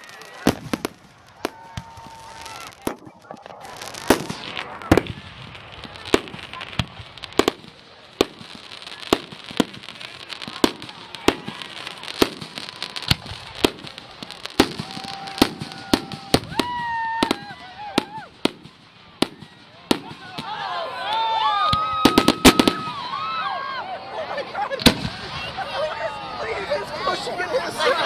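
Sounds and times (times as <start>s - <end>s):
fireworks bangs: 0.0s - 23.8s, 24.5s - 28.0s
fireworks crackle: 0.0s - 23.8s, 24.4s - 28.0s.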